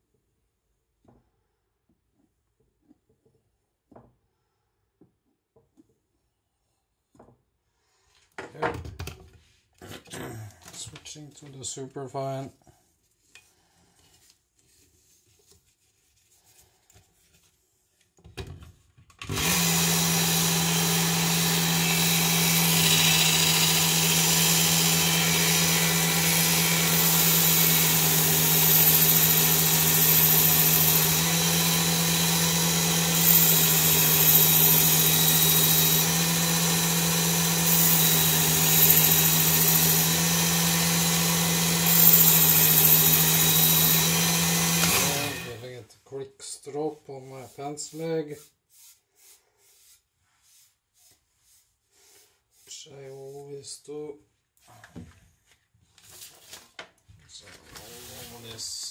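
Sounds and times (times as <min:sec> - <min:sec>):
belt sharpener motor hum: 0:19.3 - 0:45.6.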